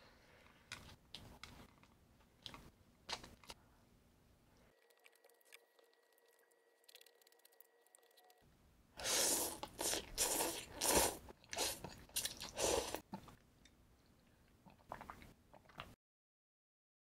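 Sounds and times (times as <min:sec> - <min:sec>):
chewing crunchy food: 0:09.6 - 0:16.0.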